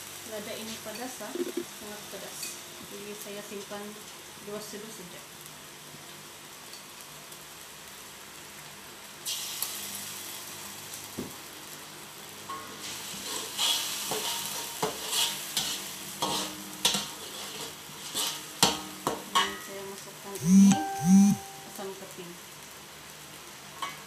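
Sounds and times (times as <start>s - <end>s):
oil sizzling in a wok: 0.0s - 20.4s, 21.5s - 24.0s
spatula scraping a wok: 12.8s - 18.8s.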